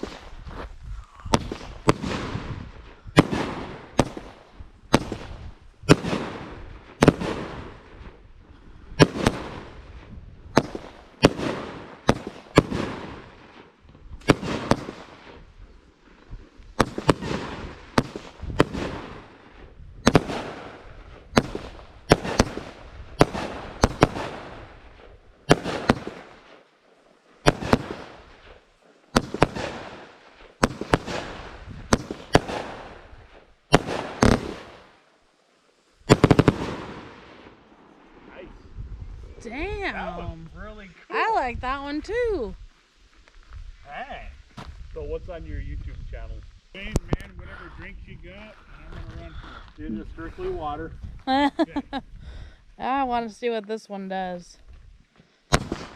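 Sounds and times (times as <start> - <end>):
firework cake bangs: 1.3 - 8.2, 9.0 - 9.8, 10.5 - 15.4, 16.8 - 26.6, 27.4 - 28.5, 29.1 - 33.1, 33.7 - 34.9, 36.1 - 37.6, 55.5 - 55.9.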